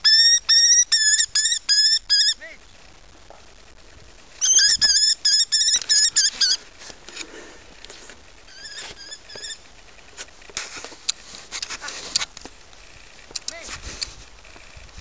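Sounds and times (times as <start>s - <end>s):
kestrel shrill kee kee call: 0.0s - 2.4s, 4.4s - 6.6s.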